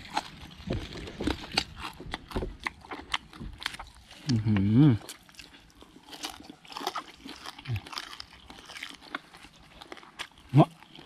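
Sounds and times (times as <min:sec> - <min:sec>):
crunchy chewing and biting: 0:00.0 - 0:11.0
small bones crackling: 0:00.0 - 0:11.0
person humming mm: 0:04.2 - 0:05.0.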